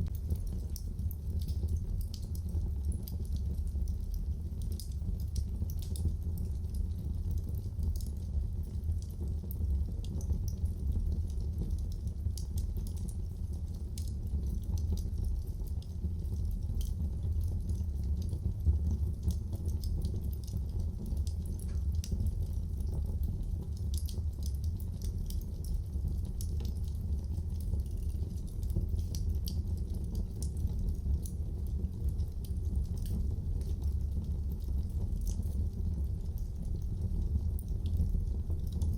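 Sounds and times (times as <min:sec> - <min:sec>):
fireplace fire crackling: 0:00.0 - 0:38.9.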